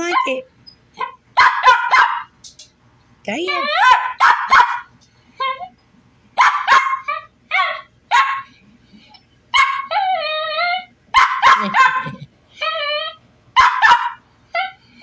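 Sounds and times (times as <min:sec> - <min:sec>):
dog bark-yelps: 0:01.0 - 0:02.3, 0:03.6 - 0:05.7, 0:06.4 - 0:08.6, 0:09.5 - 0:12.7, 0:13.6 - 0:14.8
dog whine-howl: 0:09.8 - 0:11.0, 0:12.6 - 0:13.2.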